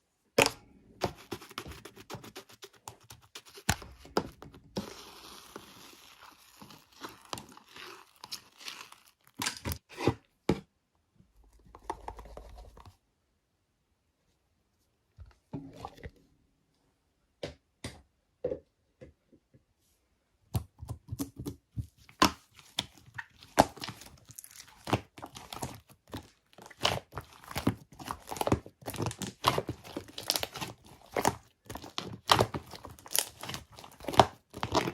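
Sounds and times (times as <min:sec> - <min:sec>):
slime squished by hand: 0:22.1 - 0:34.9.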